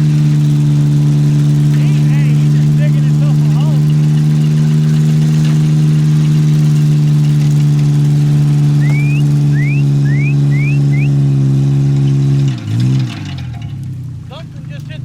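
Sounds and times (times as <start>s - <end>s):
truck engine running: 0.0s - 15.0s
short rising chirps: 8.8s - 11.2s.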